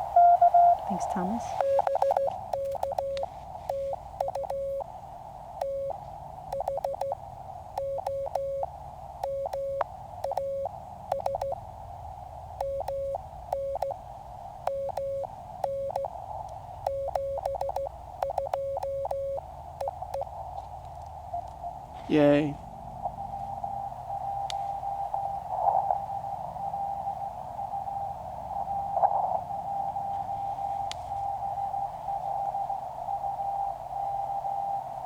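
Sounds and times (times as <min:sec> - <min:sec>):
radio band hiss: 0:00.0 - 0:03.4
morse code sidetone beeps: 0:00.2 - 0:04.8, 0:05.6 - 0:07.2, 0:07.8 - 0:11.6, 0:12.6 - 0:14.0, 0:14.7 - 0:16.1, 0:16.8 - 0:20.3.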